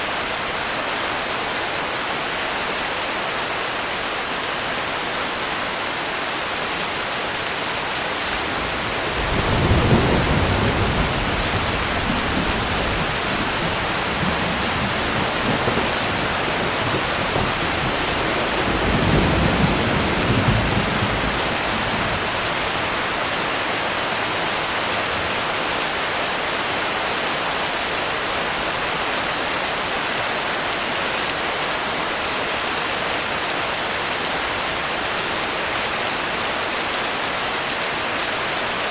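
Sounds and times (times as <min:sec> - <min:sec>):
heavy rain hissing: 0:00.0 - 0:38.9
distant thunder rumbling: 0:08.2 - 0:22.9.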